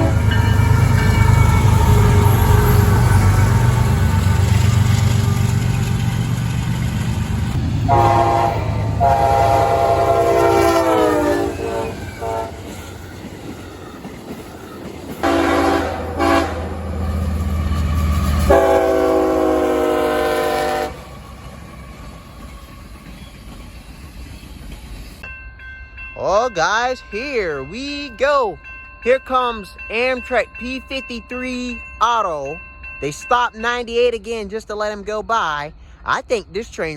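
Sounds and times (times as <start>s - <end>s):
locomotive air horn blasts: 0.0s - 0.8s, 7.9s - 12.7s, 15.2s - 16.8s, 18.5s - 21.1s
low locomotive rumble: 0.0s - 25.2s.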